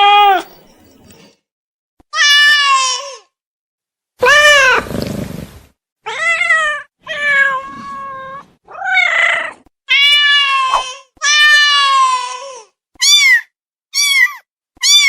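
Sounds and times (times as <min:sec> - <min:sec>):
wild cat meowing: 0:06.1 - 0:10.7.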